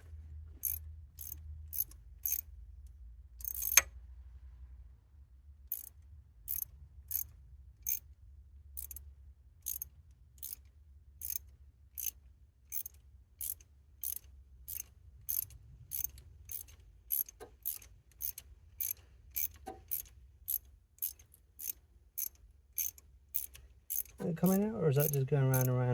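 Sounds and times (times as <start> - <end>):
ratchet wrench clicking: 0.6 - 2.5, 3.4 - 3.9, 5.7 - 8.1, 8.8 - 25.8.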